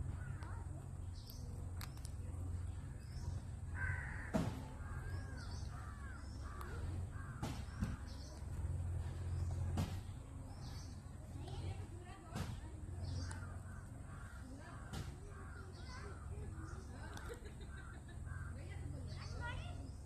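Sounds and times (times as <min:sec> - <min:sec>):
short chattering bird calls: 0:00.0 - 0:20.0
steady low hum: 0:00.0 - 0:20.0
sharp clicks: 0:00.2 - 0:02.2
harsh caw-like bird call: 0:03.7 - 0:08.2, 0:13.3 - 0:16.8.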